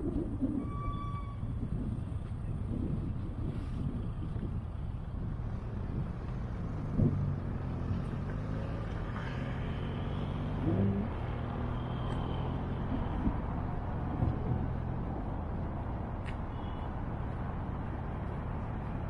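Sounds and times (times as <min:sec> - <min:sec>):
low street rumble: 0:00.0 - 0:19.0
vehicle engine accelerating: 0:01.6 - 0:16.0.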